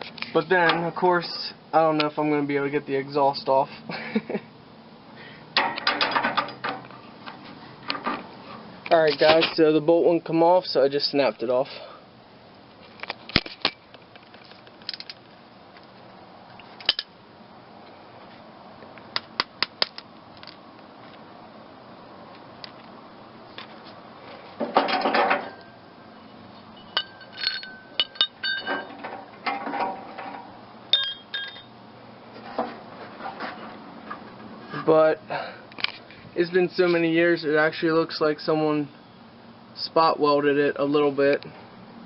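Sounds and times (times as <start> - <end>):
metal clinking and knocking: 5.6 - 6.9, 24.6 - 25.7, 26.8 - 31.7
ringing metal taps: 26.8 - 31.7.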